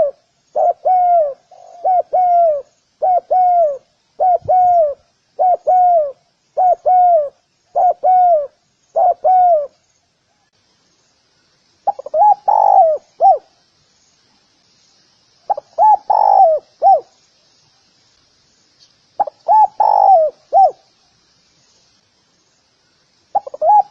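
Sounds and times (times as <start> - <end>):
dove cooing: 0.0 - 9.8, 11.8 - 13.5, 15.5 - 17.1, 19.2 - 20.8, 23.3 - 23.9.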